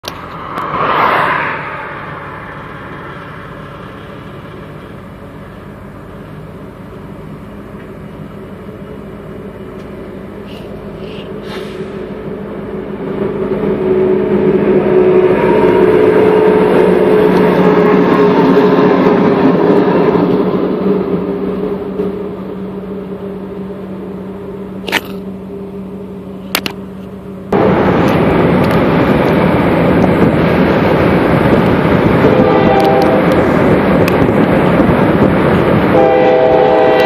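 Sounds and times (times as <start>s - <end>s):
car passing: 0.0s - 5.5s
diesel locomotive engine drone: 0.0s - 37.0s
train wheels rumbling on rails: 0.0s - 37.0s.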